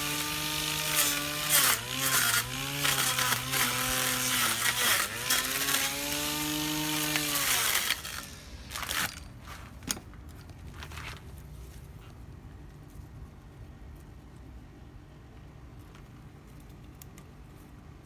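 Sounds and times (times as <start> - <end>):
electric grass trimmer running: 0.0 - 9.2
rustling: 7.0 - 14.6.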